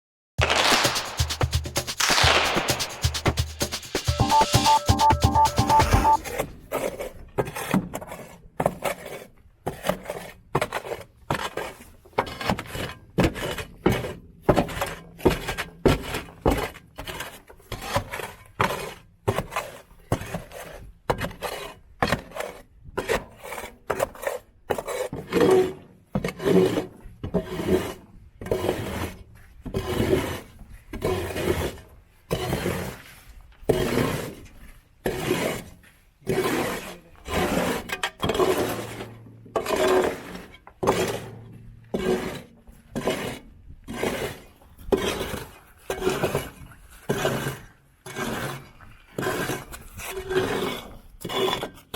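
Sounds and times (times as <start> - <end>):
scraper blade scraping: 0.4 - 7.0.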